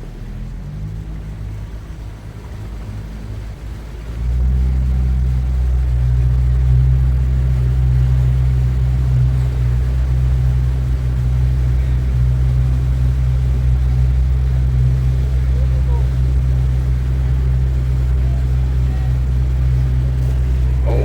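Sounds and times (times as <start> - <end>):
motorboat engine droning: 0.0 - 21.0.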